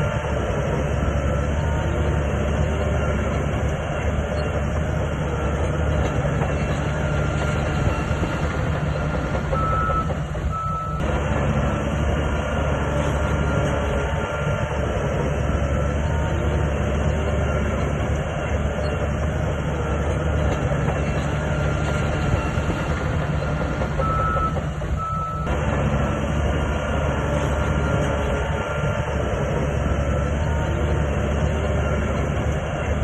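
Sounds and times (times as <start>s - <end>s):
bulldozer diesel engine running: 0.0s - 33.0s
machinery clatter: 0.0s - 33.0s
high reversing beeps: 9.4s - 11.0s, 24.0s - 25.5s.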